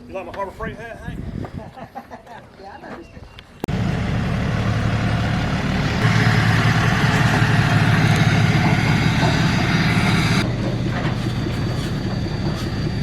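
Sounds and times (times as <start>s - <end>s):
diesel engine running hard: 3.7s - 13.0s
hissing whine: 3.7s - 13.0s.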